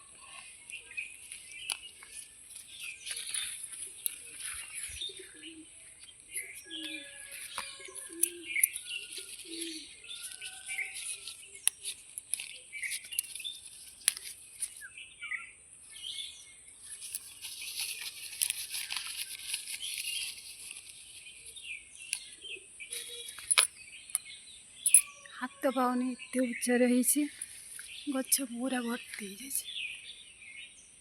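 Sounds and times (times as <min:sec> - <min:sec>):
small birds chirping: 0:00.0 - 0:31.0
sharp clicks and rustles: 0:00.4 - 0:05.3, 0:06.0 - 0:14.8, 0:16.8 - 0:21.4, 0:22.1 - 0:24.2.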